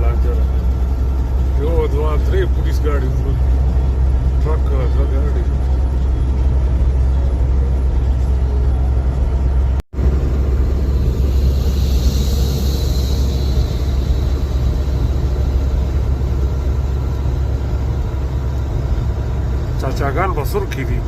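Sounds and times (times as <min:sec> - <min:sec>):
truck engine drone and road noise: 0:00.0 - 0:21.0
hiss: 0:11.0 - 0:14.8.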